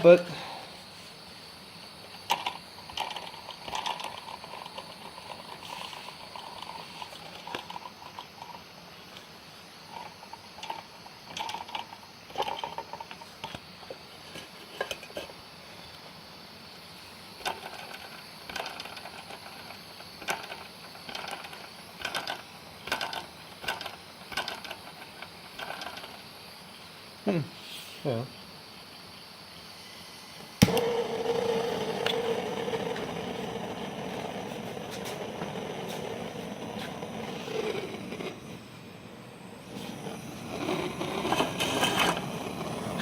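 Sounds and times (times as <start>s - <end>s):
engine mechanism clicking and rattling: 17.4s - 26.2s.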